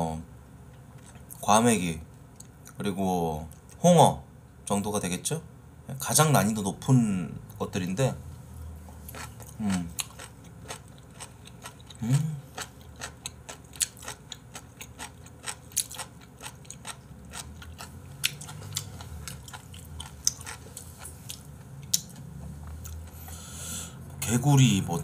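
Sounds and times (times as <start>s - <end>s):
wet chewing with mouth clicks: 8.9s - 23.3s
person humming: 12.0s - 12.5s.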